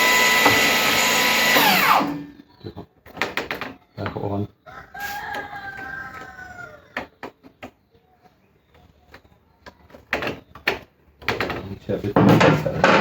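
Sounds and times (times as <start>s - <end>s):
rooster crowing: 4.6s - 7.0s.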